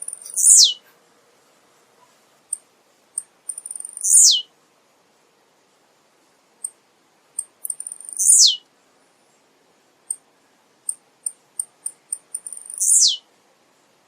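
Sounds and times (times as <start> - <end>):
bird singing high buzzy note: 0.0 - 0.8, 3.6 - 4.5, 7.7 - 8.6, 12.4 - 13.2
short high bird chips: 0.0 - 0.8, 3.5 - 4.4, 7.4 - 8.6, 11.9 - 13.2.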